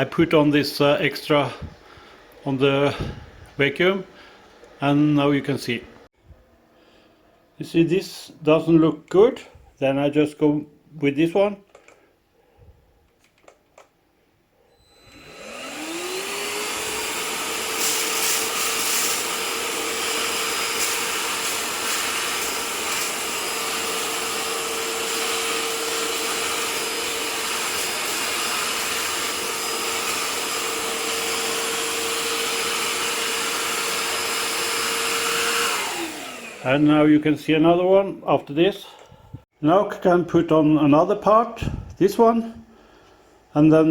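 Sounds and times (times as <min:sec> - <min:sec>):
vacuum motor whine: 0:14.7 - 0:36.9.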